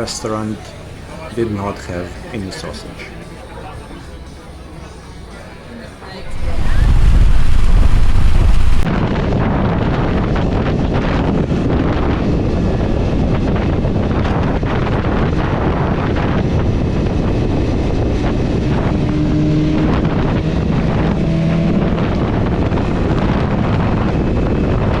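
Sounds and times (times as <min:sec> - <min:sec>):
deep rumble: 0:06.2 - 0:08.9
vehicle moving on road: 0:06.2 - 0:08.9, 0:14.8 - 0:25.0
wind buffeting microphone: 0:06.2 - 0:25.0.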